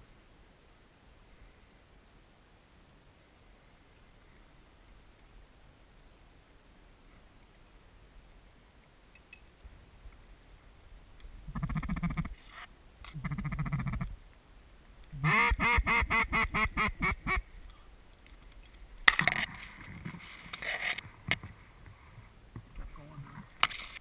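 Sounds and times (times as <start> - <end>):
rustling: 7.0 - 15.2, 17.4 - 24.0
duck quacking: 11.5 - 12.3, 13.2 - 14.1, 15.2 - 17.4
buzzy rattling duck calls: 11.5 - 12.4, 13.1 - 14.1, 15.2 - 17.4.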